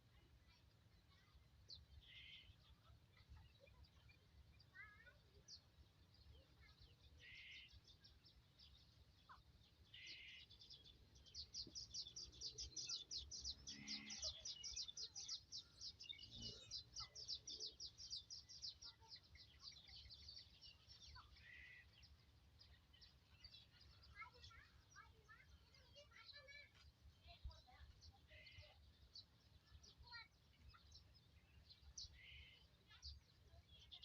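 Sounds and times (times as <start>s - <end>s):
high bird chirps: 6.6s - 26.8s.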